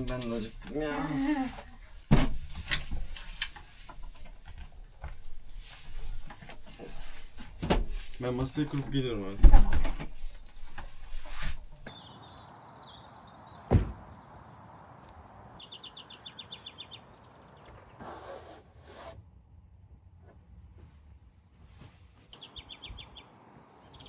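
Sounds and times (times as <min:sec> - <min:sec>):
small birds singing: 0:11.8 - 0:18.0, 0:22.3 - 0:24.0
soft thumps: 0:13.7 - 0:14.1.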